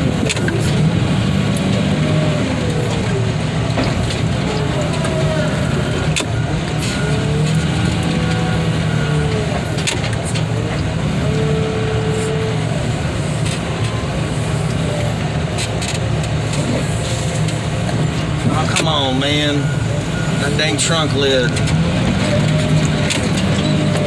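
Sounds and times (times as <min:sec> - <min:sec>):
heavy diesel machinery running: 0:00.0 - 0:24.0
machinery whine: 0:00.0 - 0:24.0.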